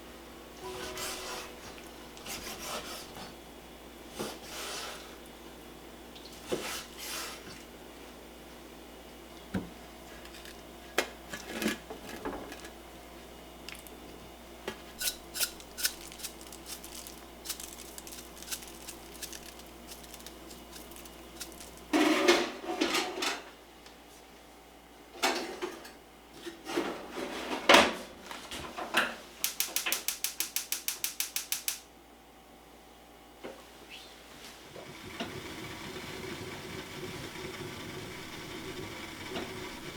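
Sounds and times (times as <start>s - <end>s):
dishes and pots clattering: 21.9s - 23.4s
quick run of clicks: 29.4s - 31.8s.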